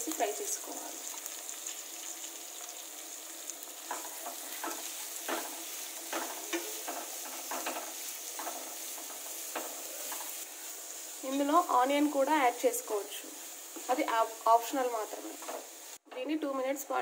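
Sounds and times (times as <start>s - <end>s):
carrot sizzling in oil: 0.0s - 17.0s
spatula scraping a pan: 3.7s - 11.2s, 15.0s - 16.0s.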